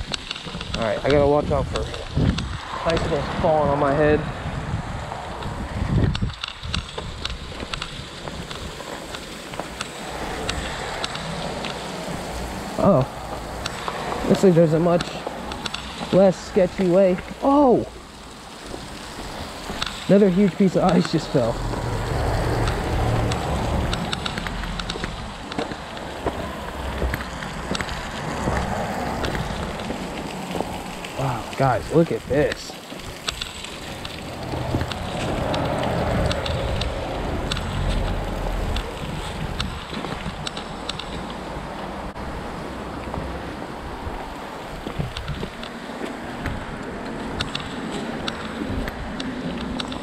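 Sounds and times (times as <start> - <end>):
wind gust on microphone: 0.0 - 8.8, 19.0 - 49.2
water dripping and spattering: 0.0 - 50.0
water rushing: 0.0 - 50.0.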